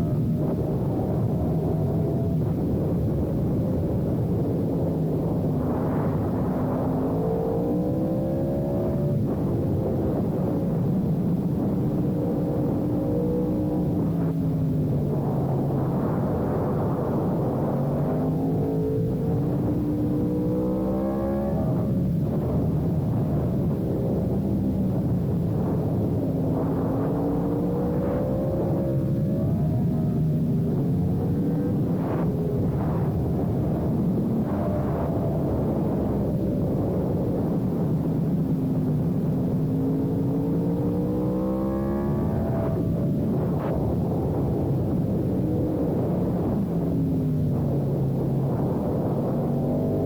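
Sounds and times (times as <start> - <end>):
motorcycle engine accelerating: 0.0 - 50.0
wind rumble: 0.0 - 50.0.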